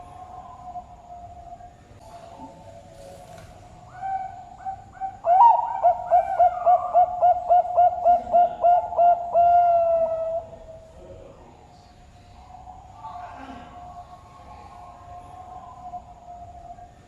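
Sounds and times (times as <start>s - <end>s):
dove cooing: 0.0s - 10.8s.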